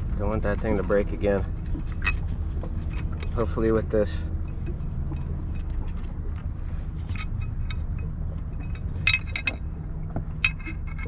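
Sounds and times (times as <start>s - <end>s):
steady low hum: 0.0s - 11.0s
hand tools clinking on metal: 7.0s - 11.0s.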